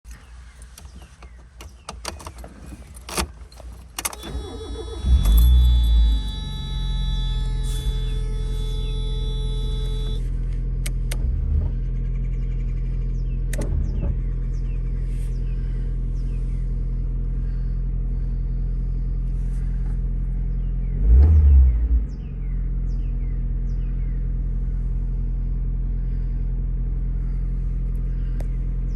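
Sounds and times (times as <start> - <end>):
car engine starting and idling: 0.1 - 28.9
steady high tone: 4.4 - 10.3.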